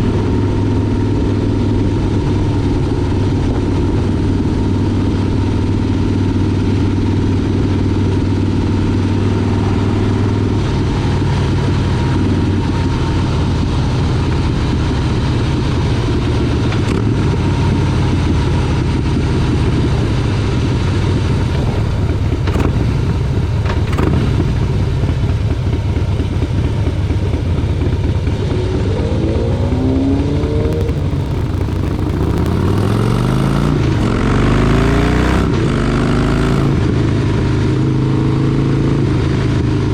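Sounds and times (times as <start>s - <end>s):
motorcycle engine accelerating: 0.0s - 39.9s
rushing haze: 30.4s - 34.3s.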